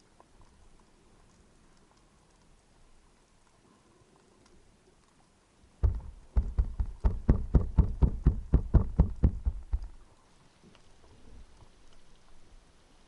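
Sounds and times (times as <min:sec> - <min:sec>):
sharp knocks on stone underwater: 0:05.8 - 0:10.0.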